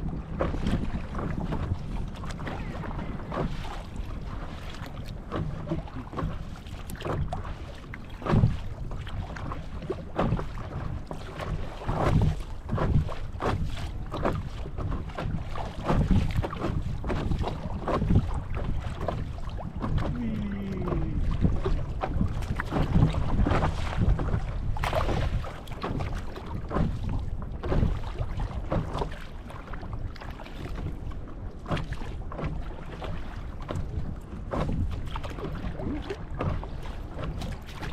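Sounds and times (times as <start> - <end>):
wind buffeting microphone: 0.0 - 7.4, 8.1 - 29.1
water slapping against paddle board: 0.0 - 37.9.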